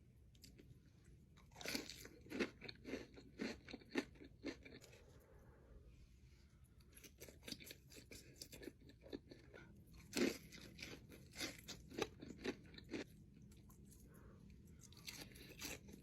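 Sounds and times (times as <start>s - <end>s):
chewing crispy chicken: 0.3s - 5.1s, 6.8s - 16.0s.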